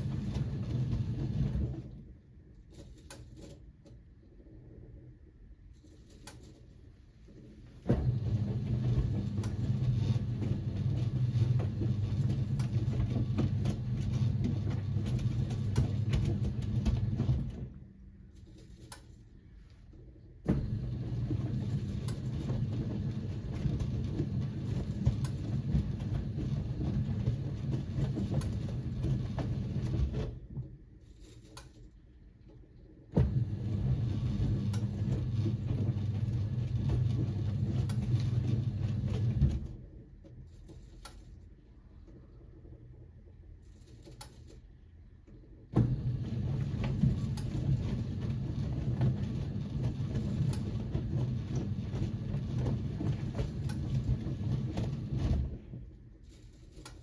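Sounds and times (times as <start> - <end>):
washing machine drum motor humming: 0.0 - 2.5, 7.3 - 17.9, 20.4 - 30.6, 32.6 - 40.9, 45.7 - 56.0.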